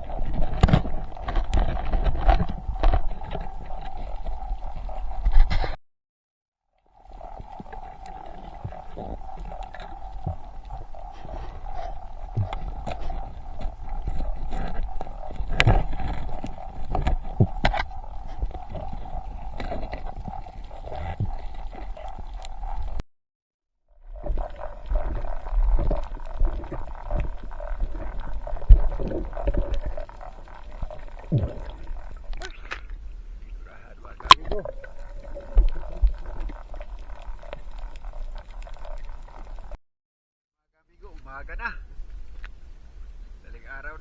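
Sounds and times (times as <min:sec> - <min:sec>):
low underwater rumble: 0:00.0 - 0:05.8, 0:07.1 - 0:23.0, 0:24.2 - 0:39.8
sharp clicks and crackles: 0:00.0 - 0:05.8, 0:07.6 - 0:23.0.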